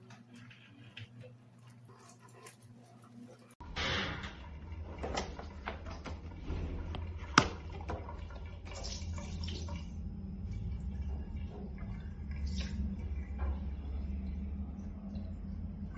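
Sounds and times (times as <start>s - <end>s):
washing machine motor hum: 0.0s - 15.9s
water sloshing: 4.2s - 15.9s.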